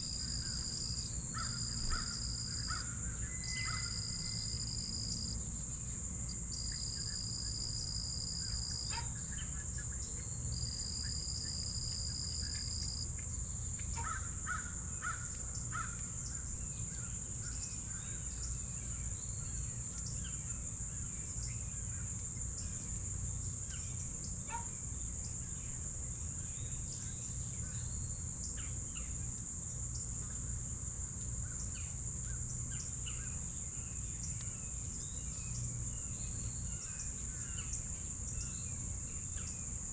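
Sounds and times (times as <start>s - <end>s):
crickets trilling: 0.0s - 39.9s
lower insect trill: 0.0s - 39.9s.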